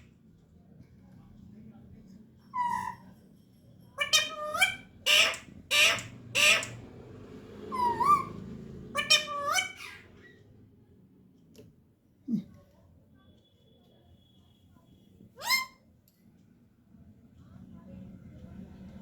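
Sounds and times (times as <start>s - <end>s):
parrot harsh squawks: 4.0s - 6.8s, 7.7s - 8.4s, 9.0s - 10.3s, 15.4s - 15.8s
parrot shrill calls: 4.0s - 6.8s, 7.7s - 8.4s, 9.0s - 10.2s, 15.4s - 15.8s.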